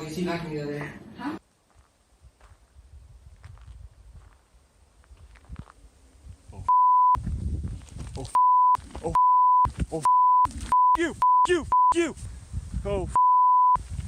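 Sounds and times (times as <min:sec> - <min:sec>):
censor bleeps: 0:06.6 - 0:07.2, 0:08.3 - 0:12.0, 0:13.1 - 0:13.8
person shouting: 0:11.0 - 0:12.2.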